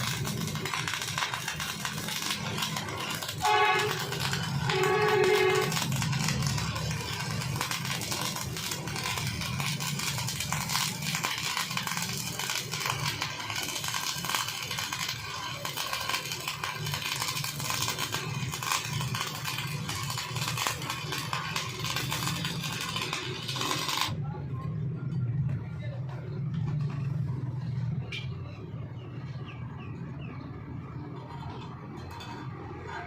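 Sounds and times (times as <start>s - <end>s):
welding arc crackling: 0.0s - 24.2s.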